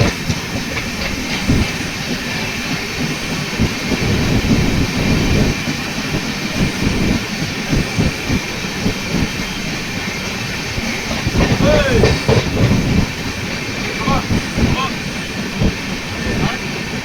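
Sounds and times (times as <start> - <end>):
train rumbling on rails: 0.0 - 17.0
wheels knocking over track: 10.7 - 14.8.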